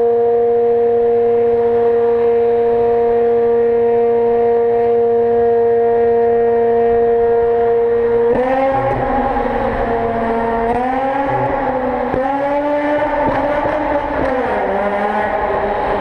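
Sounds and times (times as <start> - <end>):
rotary engine at high revs: 0.0 - 16.0
rotary engine revving: 8.2 - 16.0.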